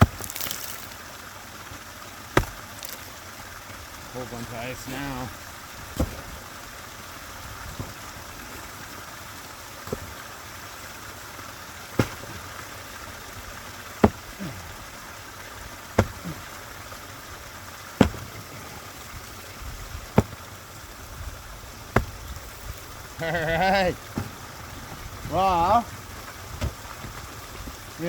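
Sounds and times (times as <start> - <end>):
sledgehammer blows on ice: 0.0 - 1.0, 2.4 - 3.1, 6.0 - 6.4, 9.8 - 10.2, 12.0 - 12.7, 13.9 - 14.8, 15.9 - 16.6, 18.0 - 19.2, 20.0 - 20.6
running water: 0.0 - 28.0.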